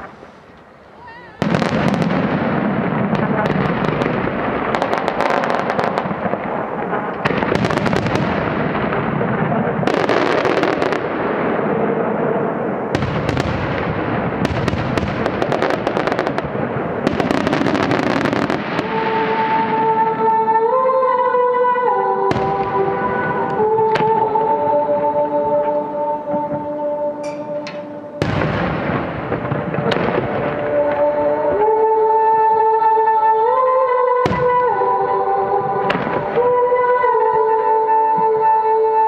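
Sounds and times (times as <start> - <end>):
music with long held notes: 15.6 - 39.0.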